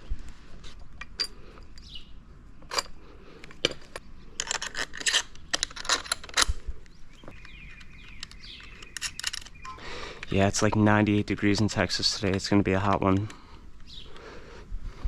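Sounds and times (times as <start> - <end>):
metal tools clinking: 1.0 - 1.9, 2.7 - 3.0, 3.6 - 6.6, 7.4 - 10.3.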